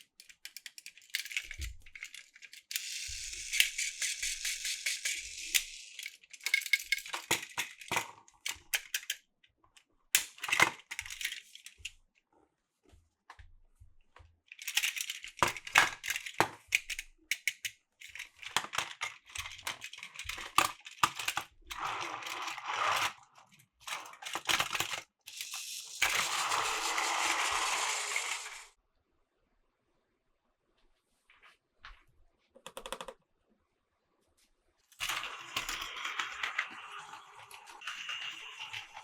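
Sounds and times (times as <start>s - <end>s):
plastic pieces clicking and clattering: 0.0s - 9.3s, 10.1s - 12.0s, 14.5s - 28.7s, 34.9s - 39.0s.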